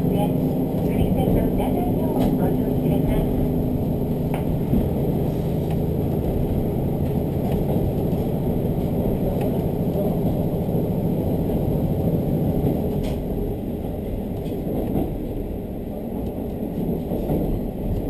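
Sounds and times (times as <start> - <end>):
railcar engine and wheel rumble: 0.0 - 18.0.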